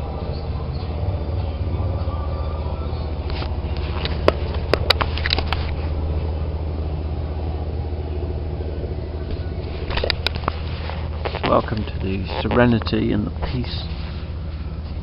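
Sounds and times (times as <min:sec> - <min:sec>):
boat engine rumble: 0:00.0 - 0:15.0.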